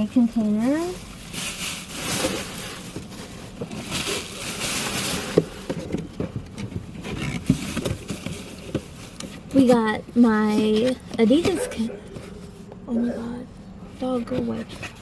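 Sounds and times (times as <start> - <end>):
paper and plastic rustling: 0.0 - 12.7, 14.0 - 15.0.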